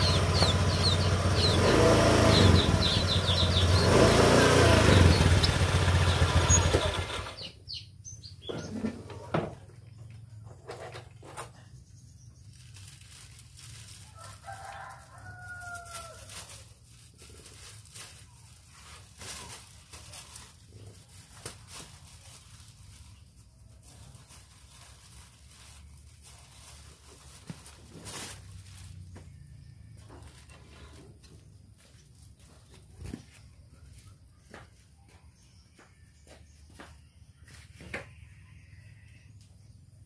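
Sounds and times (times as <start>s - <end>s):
drawn-out bird call: 0.0s - 9.0s.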